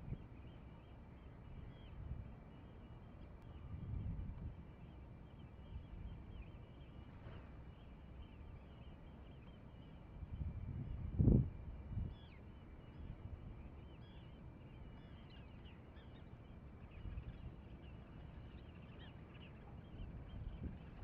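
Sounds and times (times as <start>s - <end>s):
wind rumble on microphone: 3.4s - 4.6s, 10.2s - 12.3s, 19.6s - 21.0s.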